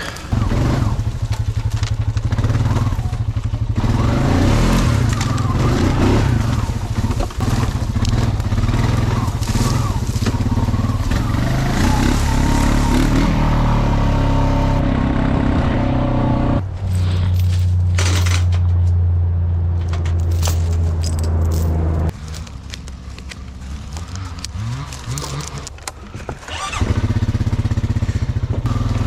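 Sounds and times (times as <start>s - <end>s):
logs scraping: 0.0s - 13.6s, 19.7s - 27.3s
four-wheeler engine running under load: 0.0s - 16.6s, 22.2s - 29.0s.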